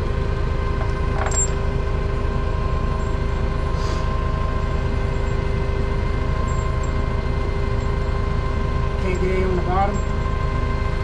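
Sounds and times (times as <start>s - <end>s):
metallic clink: 0.8s - 1.6s.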